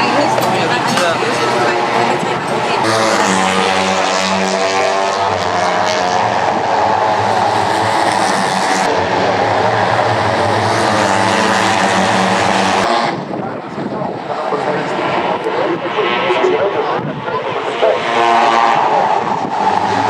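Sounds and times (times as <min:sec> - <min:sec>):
engine drone: 0:00.0 - 0:12.9.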